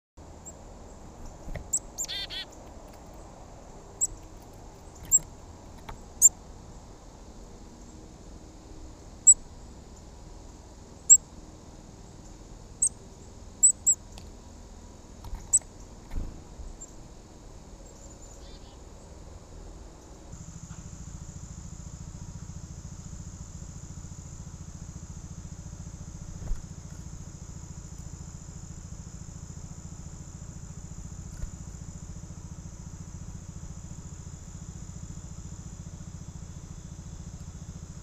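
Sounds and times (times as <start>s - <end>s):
small birds chirping: 0.3s - 6.8s, 11.0s - 11.3s, 12.0s - 14.4s, 15.2s - 17.1s, 17.7s - 19.2s, 30.5s - 32.1s
bird descending notes: 1.7s - 2.5s.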